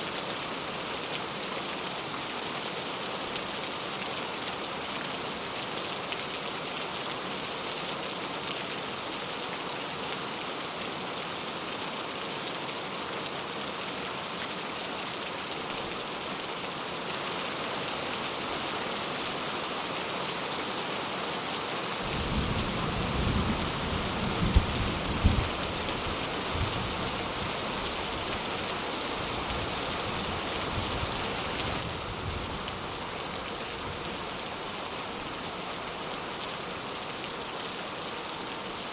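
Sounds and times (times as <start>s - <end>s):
rain hissing: 22.0s - 34.7s
low thunder rumble: 22.1s - 25.6s.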